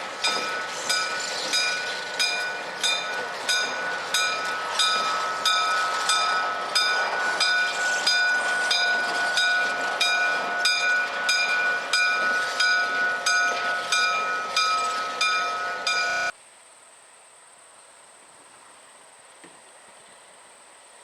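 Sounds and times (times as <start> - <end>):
crossing bell clanging: 0.0 - 16.3
passing train: 0.0 - 16.4.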